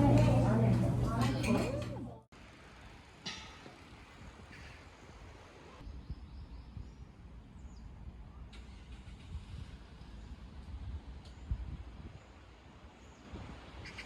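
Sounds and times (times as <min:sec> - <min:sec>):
distant traffic hum: 0:00.0 - 0:05.0.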